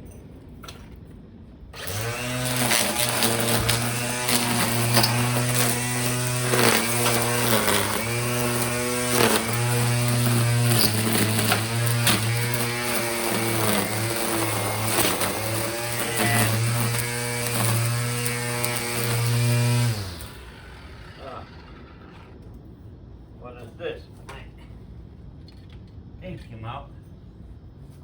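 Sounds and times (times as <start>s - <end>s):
garden trimmer motor humming: 1.8s - 22.3s.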